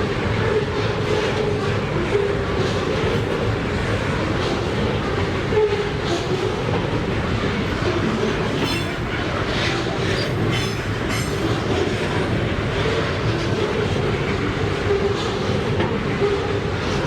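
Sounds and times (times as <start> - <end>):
freight train passing: 0.0 - 17.0
train wheel squeals: 8.0 - 12.1.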